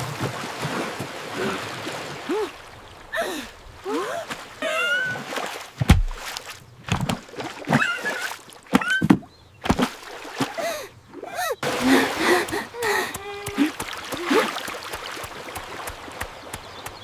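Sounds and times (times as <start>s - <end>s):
splashing: 0.0s - 17.0s
sharp knocks: 5.8s - 6.3s.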